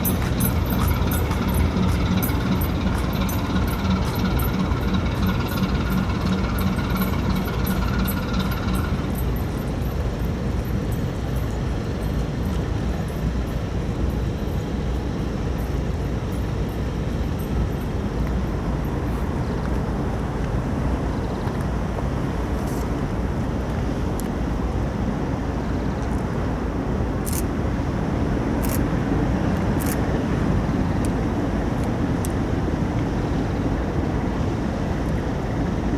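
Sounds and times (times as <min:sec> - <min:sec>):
fast even ticking: 0:00.0 - 0:10.0
steady mechanical running noise: 0:00.0 - 0:35.9.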